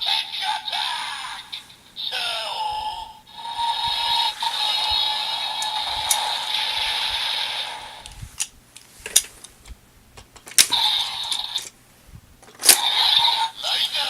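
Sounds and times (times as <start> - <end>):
toy belt electronic sound effect: 3.4 - 8.0, 10.7 - 11.7, 12.7 - 14.0.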